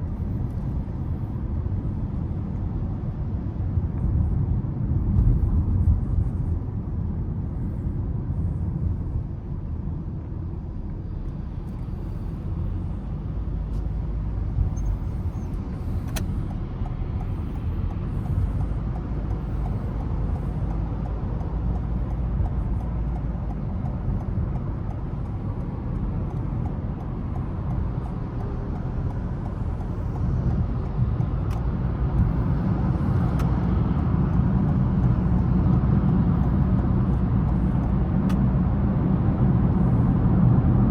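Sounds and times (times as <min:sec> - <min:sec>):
car engine and tyre rumble: 0:00.0 - 0:40.9.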